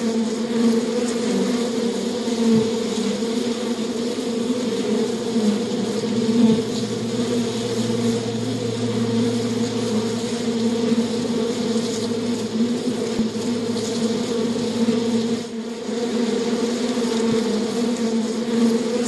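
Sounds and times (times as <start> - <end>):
flying insects buzzing: 0.0 - 19.0
low hum: 5.1 - 16.5.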